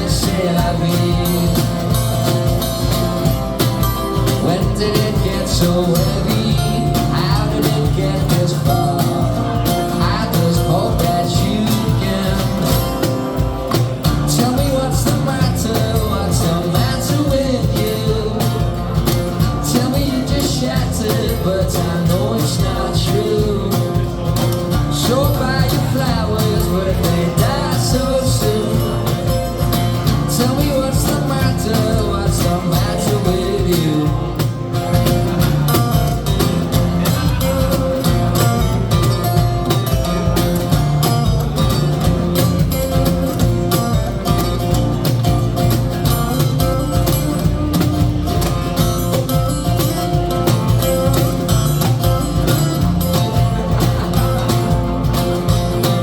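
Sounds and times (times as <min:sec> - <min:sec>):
rock band playing live: 0:00.0 - 0:56.0.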